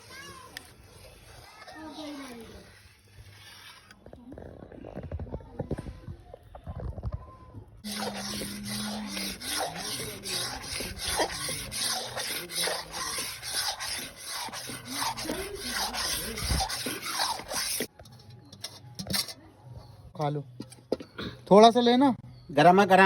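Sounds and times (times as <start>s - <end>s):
rhythmic rasping strokes: 7.8s - 17.9s.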